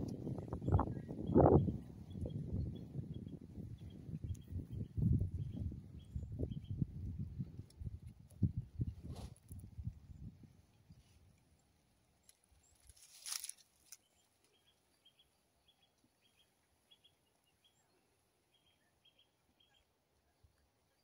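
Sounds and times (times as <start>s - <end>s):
brief rustling: 12.7s - 14.1s
faint high bird chirps: 13.9s - 21.0s.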